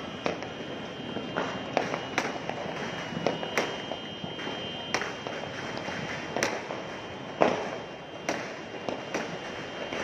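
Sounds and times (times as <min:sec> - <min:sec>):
crackling firecracker pops: 0:00.0 - 0:10.0
firework bangs: 0:00.0 - 0:10.0.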